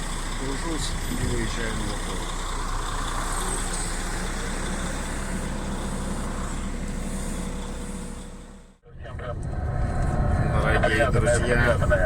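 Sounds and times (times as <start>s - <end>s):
diesel truck engine idling: 0.0s - 8.8s.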